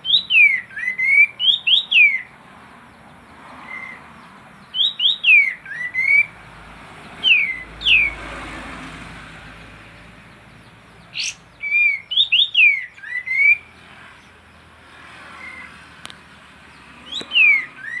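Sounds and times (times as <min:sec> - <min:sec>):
bird singing whistled notes: 0:00.0 - 0:02.4, 0:03.6 - 0:06.4, 0:07.1 - 0:08.2, 0:10.4 - 0:13.9, 0:17.0 - 0:18.0.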